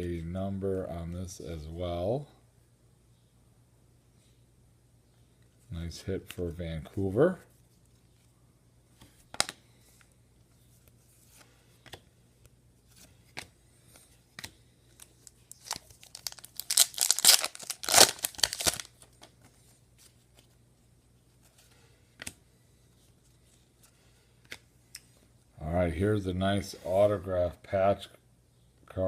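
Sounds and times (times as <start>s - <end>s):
plastic packaging crinkling: 15.0s - 19.1s.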